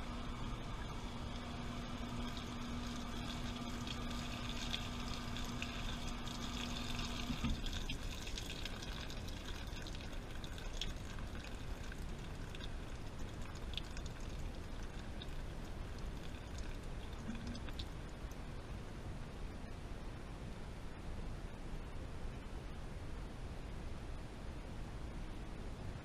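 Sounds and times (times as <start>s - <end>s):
washing machine hum: 0.0s - 18.8s
water splashing in drum: 3.9s - 8.7s.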